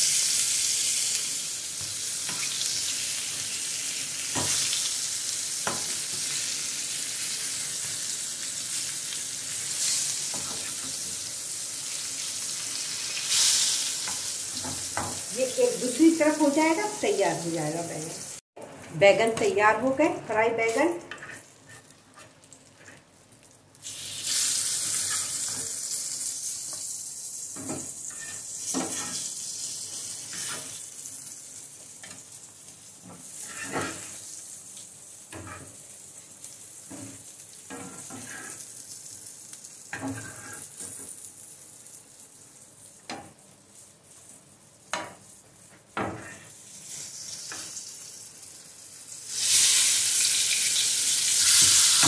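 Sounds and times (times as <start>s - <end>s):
eggplant frying in hot oil: 0.0s - 18.4s, 19.2s - 52.0s
metal spatula scraping pan: 28.1s - 29.2s, 33.4s - 34.2s, 37.7s - 38.6s, 39.9s - 40.8s.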